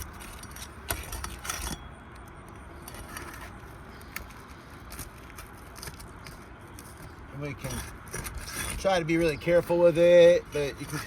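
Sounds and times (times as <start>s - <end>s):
metal bar scraping shingles: 0.0s - 1.8s, 2.8s - 3.6s, 7.6s - 9.4s, 10.5s - 11.0s.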